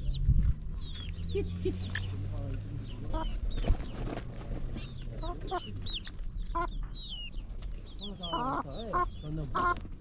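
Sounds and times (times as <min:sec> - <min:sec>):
low wavering bird calls: 0:04.7 - 0:09.9.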